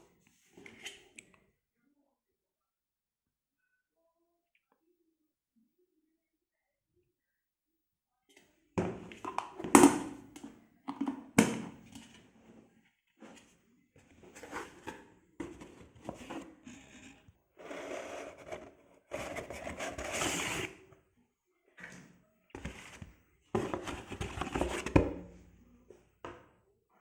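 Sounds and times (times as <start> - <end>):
objects knocking and clicking: 8.8 - 12.0.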